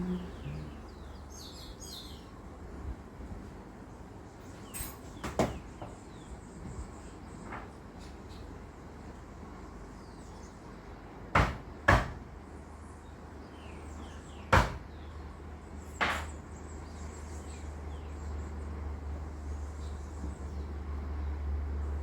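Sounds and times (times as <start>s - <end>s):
low steady rumble: 0.0s - 1.6s.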